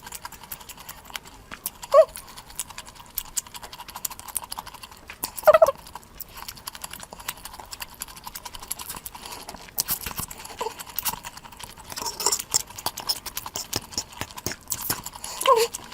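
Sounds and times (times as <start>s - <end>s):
wet chewing mouth clicks: 0.0s - 15.9s
pitched mouth sounds: 1.7s - 2.7s, 5.2s - 5.8s, 11.9s - 15.9s.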